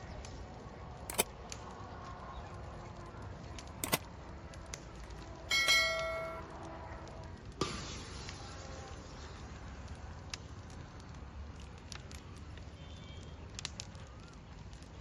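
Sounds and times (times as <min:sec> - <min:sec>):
sharp clicks: 0:03.8 - 0:04.0
short metallic ring: 0:05.5 - 0:06.4.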